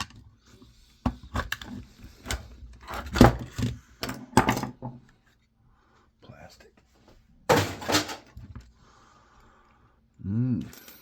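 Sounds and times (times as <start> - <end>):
plastic parts clicking and knocking: 1.0 - 5.1, 7.5 - 8.7.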